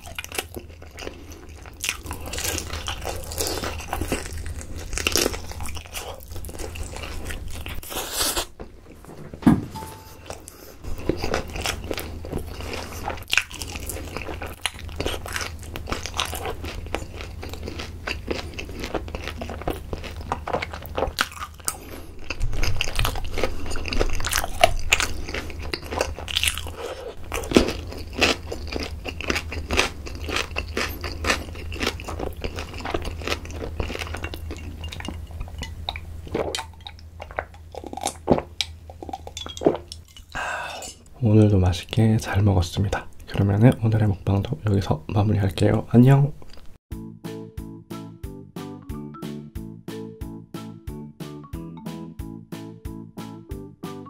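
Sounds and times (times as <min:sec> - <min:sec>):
crunchy chewing and biting: 0:00.0 - 0:08.8, 0:10.3 - 0:41.1
wet sticky mouth sounds: 0:34.0 - 0:41.1
person drinking: 0:35.9 - 0:41.1.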